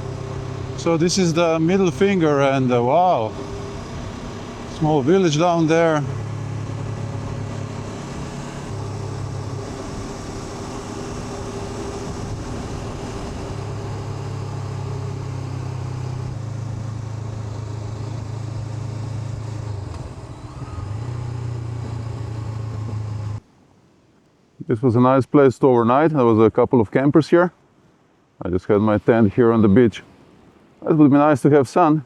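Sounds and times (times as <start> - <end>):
motorcycle engine cruising: 0.0 - 23.4
wind hiss: 0.0 - 25.9.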